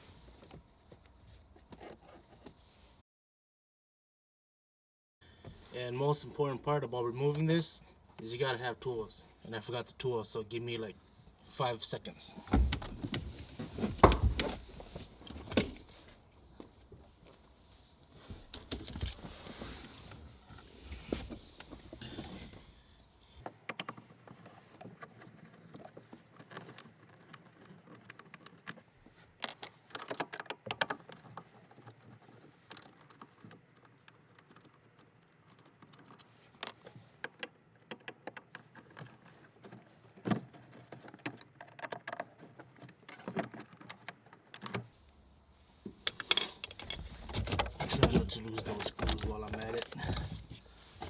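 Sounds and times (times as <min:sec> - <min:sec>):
metallic clinks of screws: 0:29.4 - 0:29.8.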